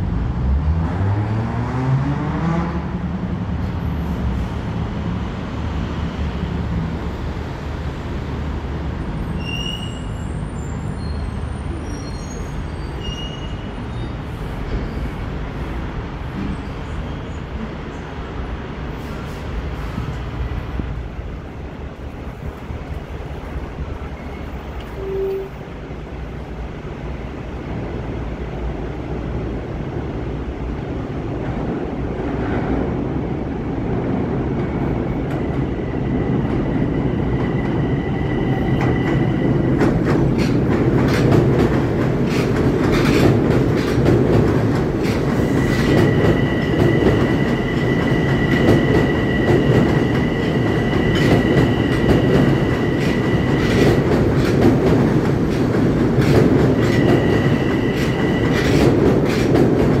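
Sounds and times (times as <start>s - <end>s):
train rumble: 1.8s - 60.0s
wheels clicking over rail joints: 51.1s - 60.0s.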